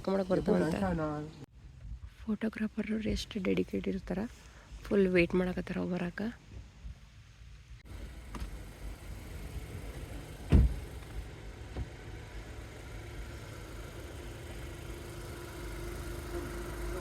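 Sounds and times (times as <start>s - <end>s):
car engine rumbling: 5.1s - 17.0s
loud thump: 10.4s - 11.0s.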